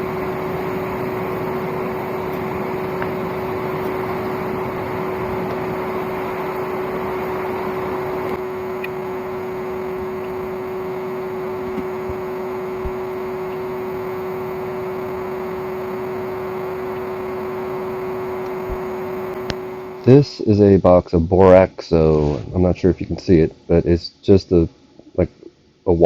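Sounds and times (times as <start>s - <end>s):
vacuum motor whining: 0.0s - 20.2s.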